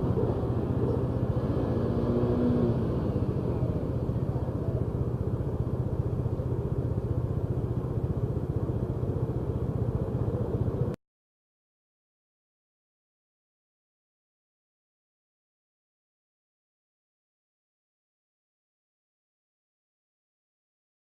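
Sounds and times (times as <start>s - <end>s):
road rumble: 0.0s - 11.0s
vehicle engine running: 0.0s - 11.0s.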